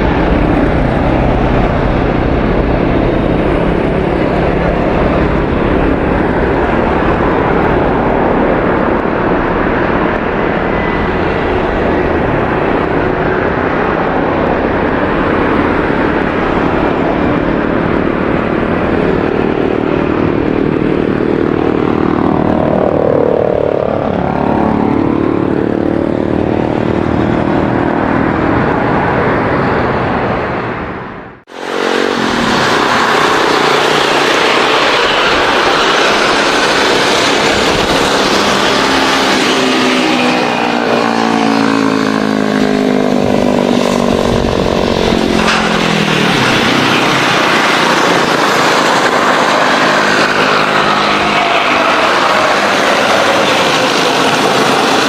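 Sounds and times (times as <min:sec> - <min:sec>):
jet engines at takeoff power: 0:00.0 - 0:55.0
jet on landing approach: 0:00.0 - 0:55.0.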